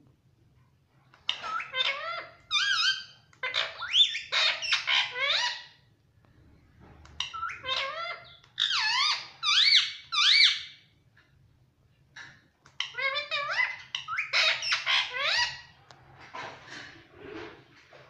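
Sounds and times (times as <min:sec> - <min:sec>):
parrot squawking: 0:01.2 - 0:05.8, 0:07.2 - 0:10.9, 0:12.8 - 0:15.8.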